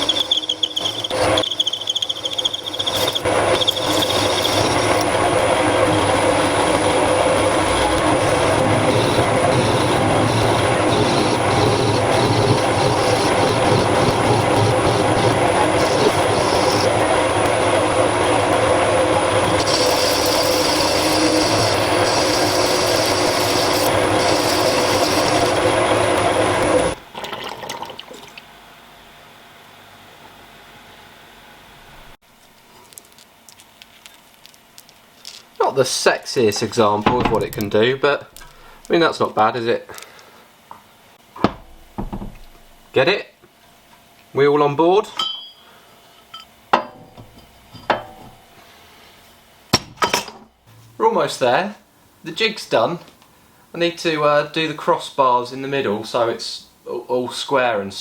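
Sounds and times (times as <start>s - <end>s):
machine tool running noise: 0.0s - 27.0s
thin high whine: 0.0s - 27.0s.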